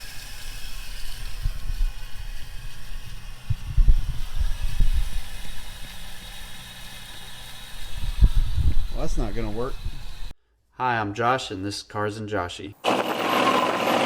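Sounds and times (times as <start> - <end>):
pressure washer running: 0.0 - 10.3.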